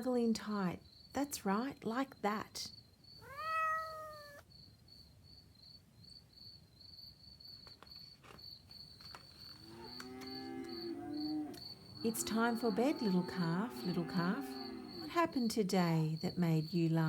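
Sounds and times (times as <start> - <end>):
crickets chirping: 0.8 - 17.0
cat meowing: 3.2 - 4.4
calf mooing: 9.6 - 15.4.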